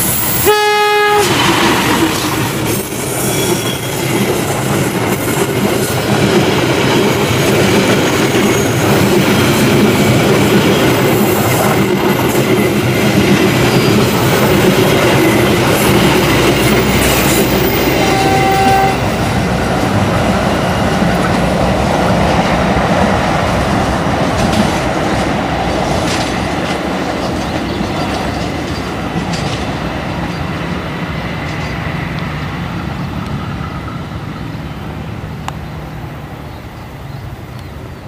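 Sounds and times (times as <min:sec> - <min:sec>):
train wheel squeal: 0:00.0 - 0:00.5, 0:01.2 - 0:06.1, 0:06.8 - 0:19.2
train wheels clacking over points: 0:01.1 - 0:21.7.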